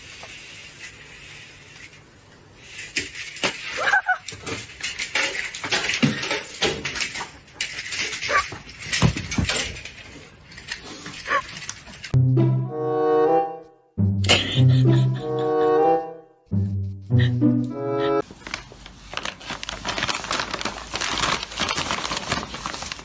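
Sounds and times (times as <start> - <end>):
high-pitched squeaky cries: 3.8 - 4.2
clattering and knocking: 4.3 - 10.2.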